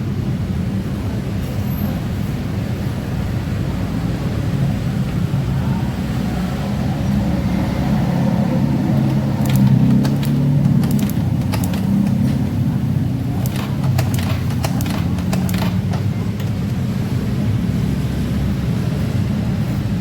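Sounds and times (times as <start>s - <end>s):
vehicle engine running: 5.9s - 20.0s
sharp clicks: 9.0s - 16.7s.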